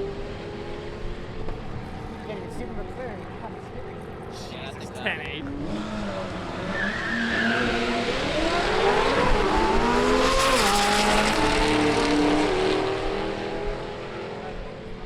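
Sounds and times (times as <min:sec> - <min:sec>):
race car engine accelerating: 0:05.6 - 0:14.4.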